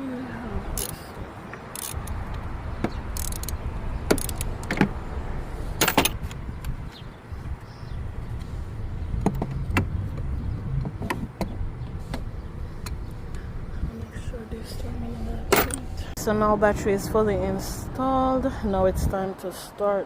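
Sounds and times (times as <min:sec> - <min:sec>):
tools clicking and knocking: 0:00.8 - 0:04.9, 0:05.8 - 0:06.7, 0:15.5 - 0:15.8.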